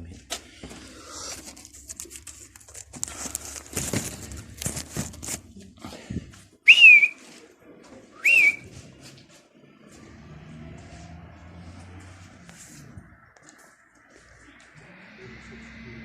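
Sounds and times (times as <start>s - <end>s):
rustling and clattering: 0.0s - 6.5s
loud short whistles: 6.7s - 7.2s, 8.2s - 8.7s.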